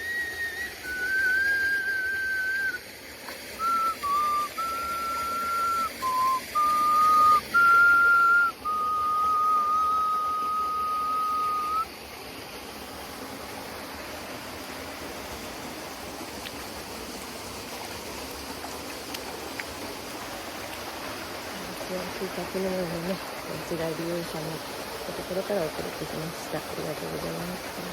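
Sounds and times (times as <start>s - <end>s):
nose flute melody: 0.0s - 2.8s, 3.6s - 11.9s
waterfall rushing: 0.0s - 27.9s.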